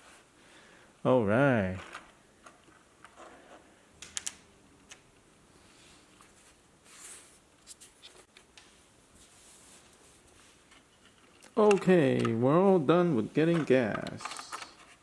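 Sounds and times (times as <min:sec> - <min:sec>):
plastic toy vehicles clicking: 0:11.2 - 0:12.4, 0:13.4 - 0:15.0.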